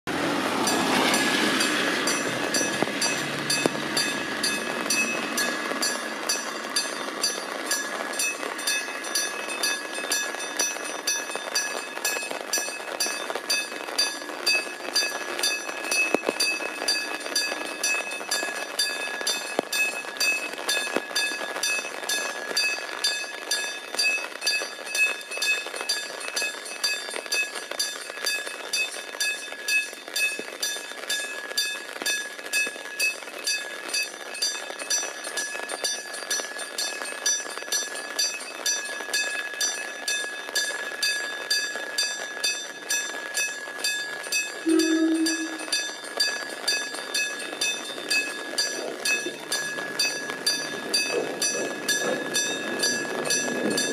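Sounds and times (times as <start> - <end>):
train rumbling past: 0.1 - 6.9, 44.7 - 45.9, 48.1 - 53.9
railway crossing bell ringing: 0.6 - 53.9.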